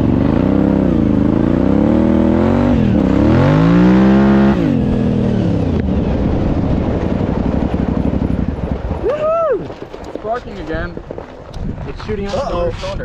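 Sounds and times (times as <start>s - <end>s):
motorcycle engine revving: 0.0s - 9.1s.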